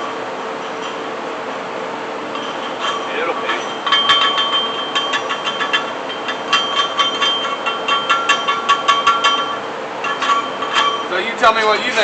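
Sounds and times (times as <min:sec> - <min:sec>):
metal-on-metal ringing taps: 0:02.3 - 0:11.1.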